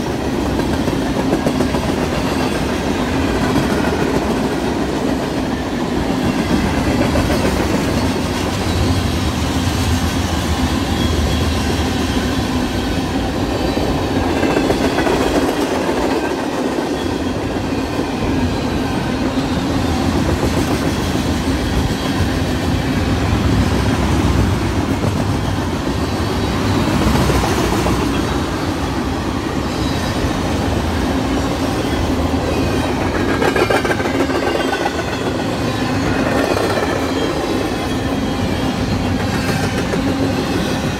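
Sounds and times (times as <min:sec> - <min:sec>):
railroad cars rumbling and clacking: 0:00.0 - 0:40.9.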